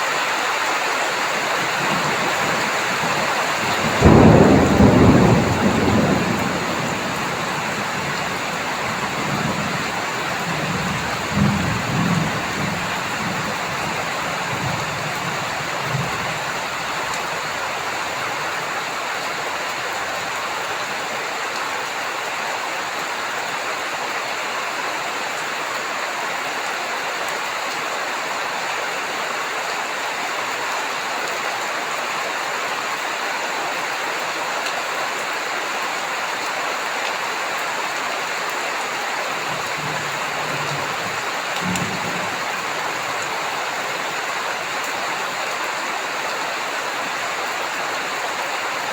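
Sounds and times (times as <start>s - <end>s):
heavy rain falling: 0.0s - 48.9s
low rumbles of thunder: 1.8s - 18.5s, 39.4s - 44.2s.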